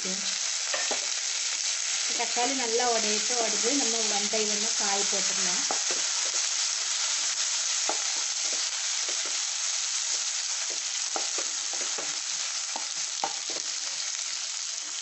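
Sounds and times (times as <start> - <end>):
vegetables sizzling in hot oil: 0.0 - 15.0
wooden spatula knocking and scraping pan: 5.6 - 6.5, 7.8 - 14.1.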